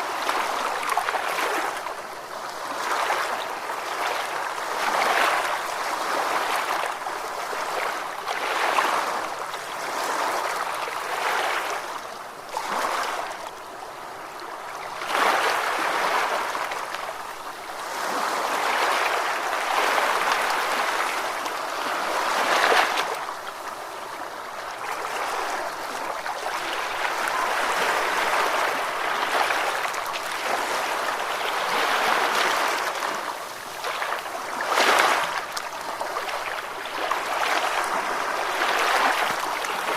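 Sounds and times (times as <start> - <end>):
ocean waves breaking: 24.9 - 39.9.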